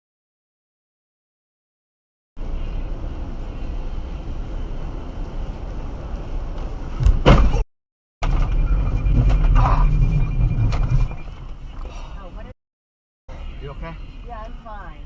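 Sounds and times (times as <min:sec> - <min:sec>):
vehicle rumble: 0:02.4 - 0:07.6, 0:08.2 - 0:12.6, 0:13.3 - 0:15.0.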